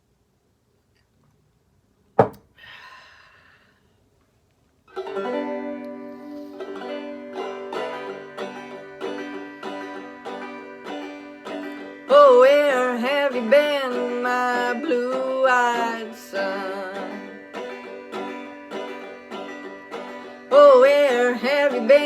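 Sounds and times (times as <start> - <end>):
sharp knock: 2.2 - 2.4
plucked string instrument chords: 5.0 - 22.0.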